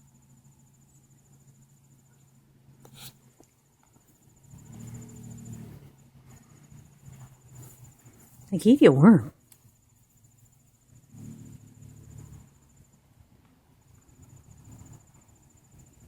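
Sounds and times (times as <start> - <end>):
insect trilling: 4.4 - 5.8.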